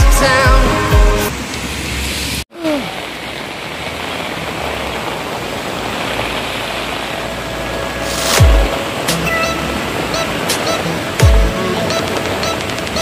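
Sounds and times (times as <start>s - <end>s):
song playing: 0.0s - 1.3s, 7.9s - 13.0s
heavy rain: 0.0s - 13.0s
traffic on wet street: 0.1s - 13.0s.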